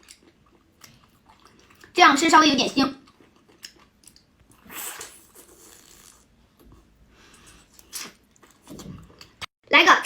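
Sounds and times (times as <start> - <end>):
person chewing: 0.0 - 2.0, 3.0 - 9.5.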